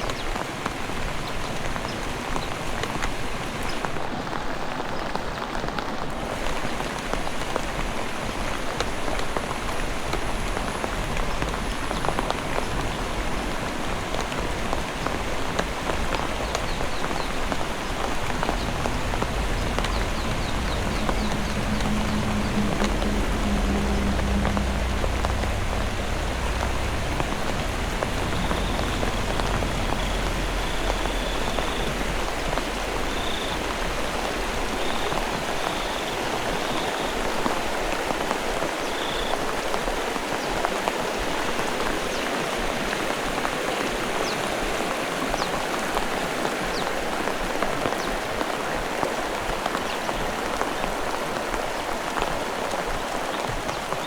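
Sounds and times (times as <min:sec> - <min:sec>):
heavy rain pattering: 0:00.0 - 0:54.0
low rumble: 0:08.8 - 0:35.8.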